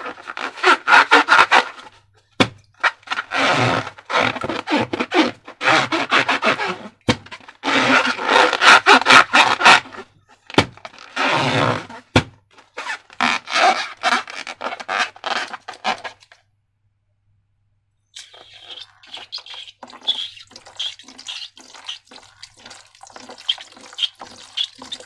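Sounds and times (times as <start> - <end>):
slime squelching by hand: 18.2 - 25.0.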